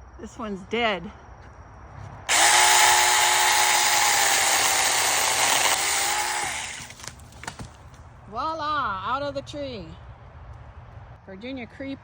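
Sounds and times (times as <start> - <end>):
chainsaw cutting a branch: 2.3 - 7.1.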